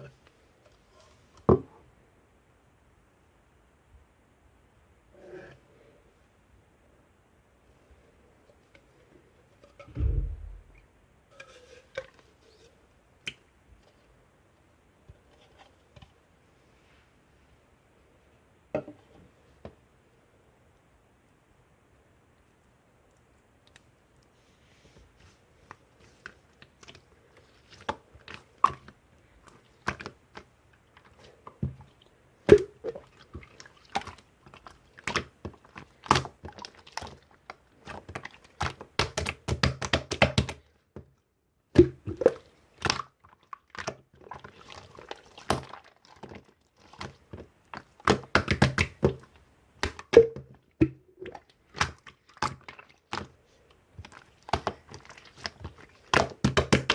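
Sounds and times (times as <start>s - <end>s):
thunks: 9.8s - 10.8s.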